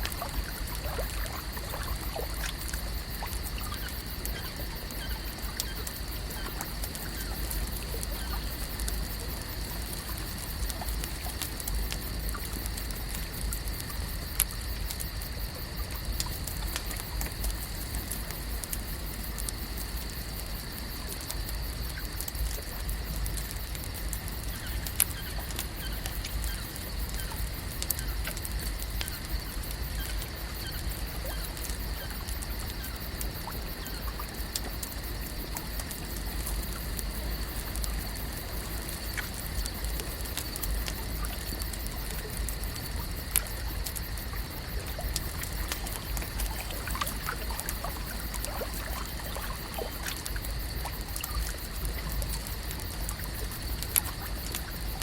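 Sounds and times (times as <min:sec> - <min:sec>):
water lapping and trickling: 0:00.0 - 0:55.0.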